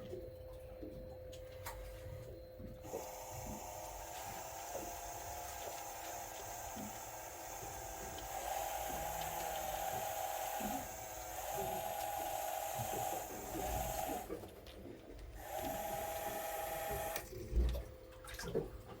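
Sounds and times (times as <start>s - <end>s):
electric fishing reel whining: 2.8s - 14.5s, 15.4s - 17.4s.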